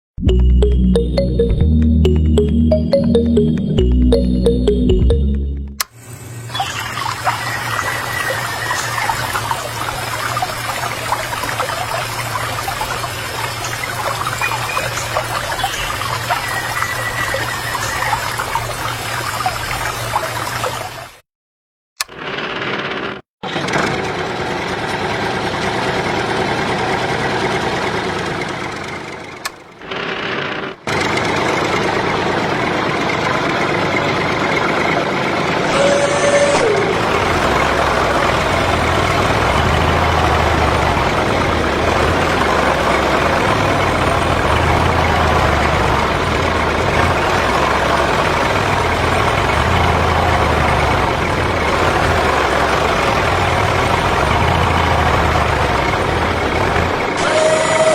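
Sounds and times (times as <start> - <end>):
low throbbing engine note: 0.2 - 5.9, 35.9 - 57.2
tractor engine running: 22.2 - 57.8
falling whistle: 35.7 - 37.0, 57.2 - 57.9.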